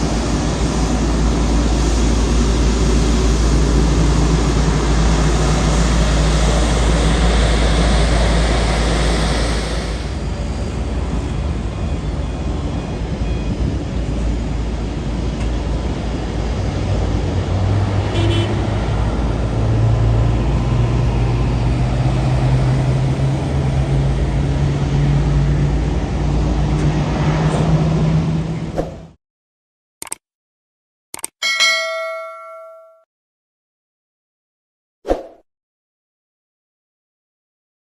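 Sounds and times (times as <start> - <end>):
jet engines running loudly: 0.0 - 28.7.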